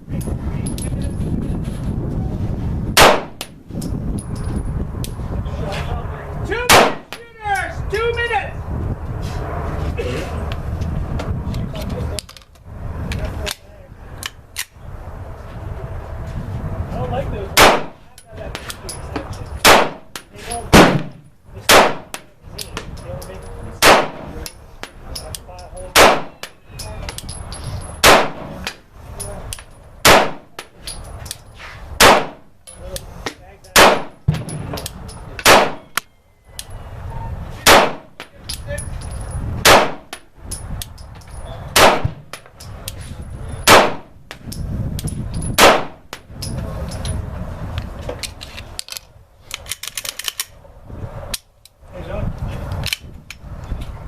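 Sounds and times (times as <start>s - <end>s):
pistol shots with ringing echo: 3.0s - 3.5s, 6.7s - 7.2s, 17.6s - 18.0s, 19.6s - 22.3s, 23.8s - 24.4s, 25.9s - 26.6s, 28.0s - 28.6s, 30.0s - 30.6s, 32.0s - 32.5s, 33.8s - 34.7s, 35.4s - 36.1s, 37.6s - 38.3s, 39.6s - 40.2s, 41.7s - 42.3s, 43.6s - 44.2s, 45.6s - 46.0s.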